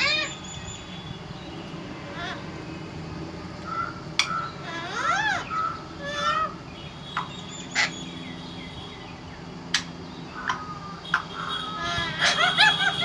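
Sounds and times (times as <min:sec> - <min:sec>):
parrot squawking: 0:04.2 - 0:06.6, 0:09.8 - 0:13.0.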